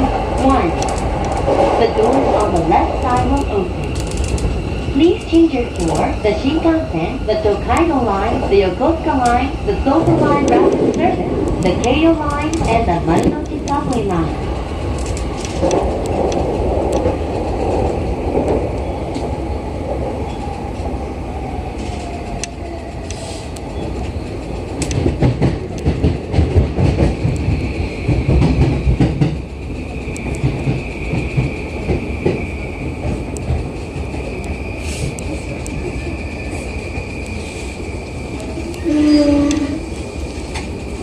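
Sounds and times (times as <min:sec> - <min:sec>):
steady high squeal: 0:27.2 - 0:40.5.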